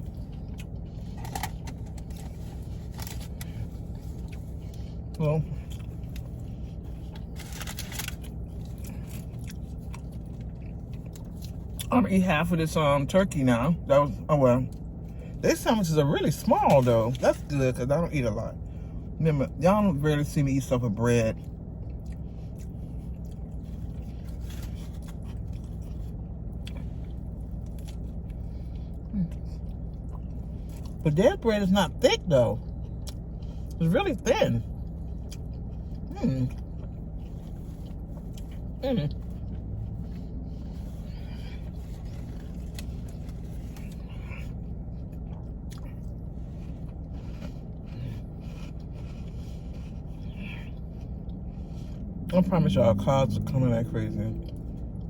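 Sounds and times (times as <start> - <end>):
close-up chewing: 0.0 - 11.9, 21.4 - 31.0, 34.7 - 52.3
car idling: 0.0 - 55.0
steady low hum: 0.0 - 55.0.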